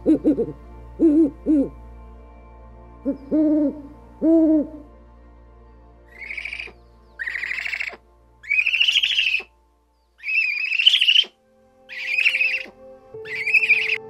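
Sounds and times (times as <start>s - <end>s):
owl trilling whistled calls: 6.1s - 9.5s, 10.2s - 14.0s.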